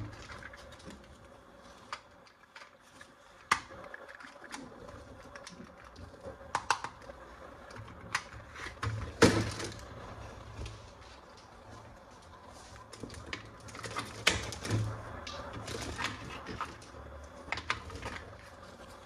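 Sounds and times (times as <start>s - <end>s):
plastic toys clicking and tapping: 1.8s - 9.9s, 12.9s - 18.6s.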